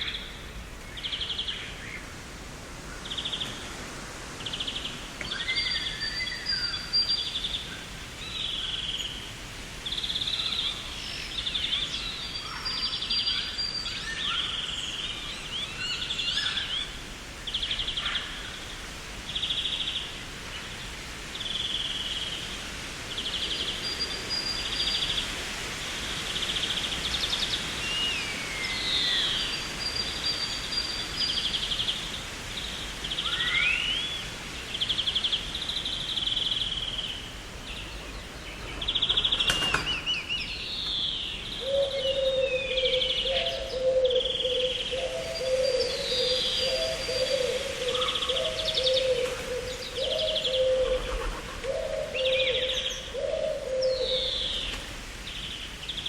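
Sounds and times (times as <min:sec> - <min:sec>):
steady hiss: 0:00.0 - 0:56.0
birds rattling trills: 0:27.2 - 0:56.0.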